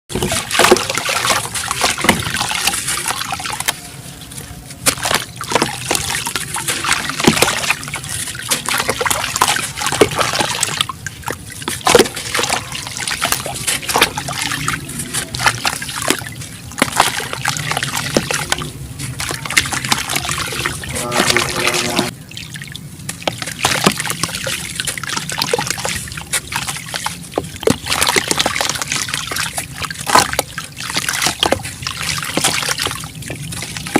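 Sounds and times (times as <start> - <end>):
cement crumbling in water: 0.1 - 2.8
water trickling and splashing: 0.1 - 33.9.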